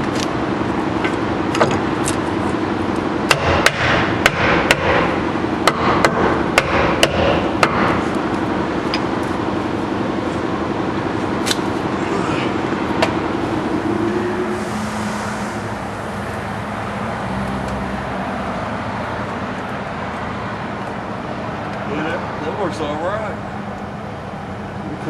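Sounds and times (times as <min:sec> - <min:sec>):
steady hum: 0:00.0 - 0:25.0
hammer striking sheet metal: 0:03.3 - 0:08.0.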